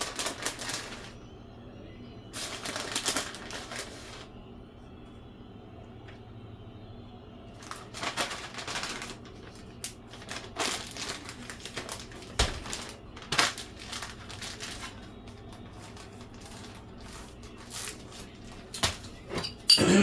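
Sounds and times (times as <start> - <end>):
food packaging rustling and crinkling: 0.0 - 1.2, 2.3 - 4.3, 7.5 - 19.6.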